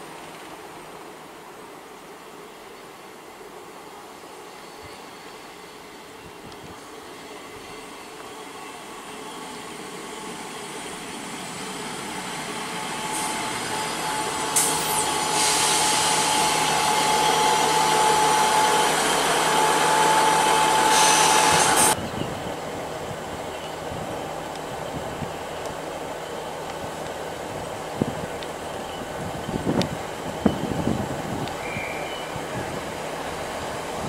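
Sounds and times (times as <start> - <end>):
train engine and wheel noise: 0.0 - 34.0
high wheel squeal: 12.8 - 22.0.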